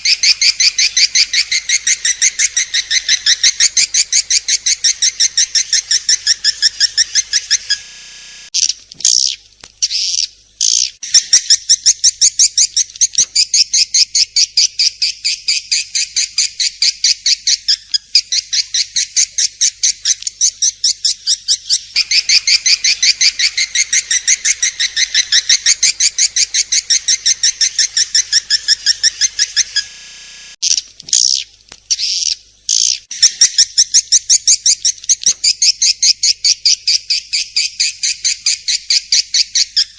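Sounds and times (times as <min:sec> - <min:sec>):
swiftlet chirping: 0:22.0 - 0:30.6.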